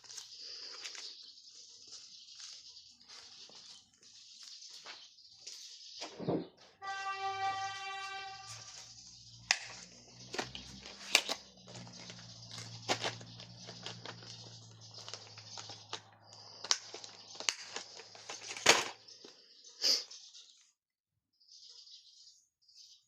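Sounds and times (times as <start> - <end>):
paper rustling and crinkling: 0.0 - 6.3, 9.7 - 19.4.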